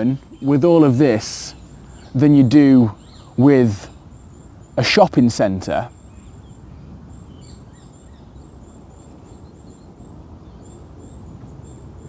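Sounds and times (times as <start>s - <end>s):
faint high bird chirps: 0.0s - 12.0s.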